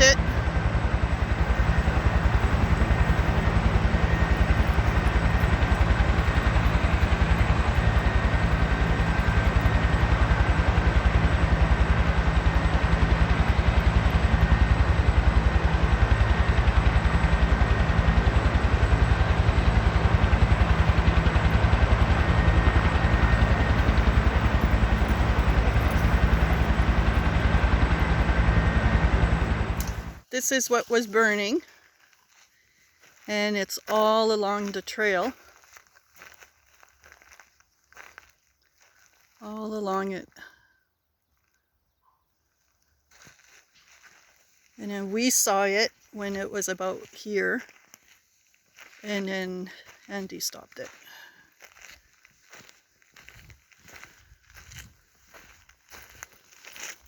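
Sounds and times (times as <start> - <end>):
high turbine whine: 0.0 - 31.1
helicopter rotor blades beating: 0.0 - 31.6, 44.8 - 47.7.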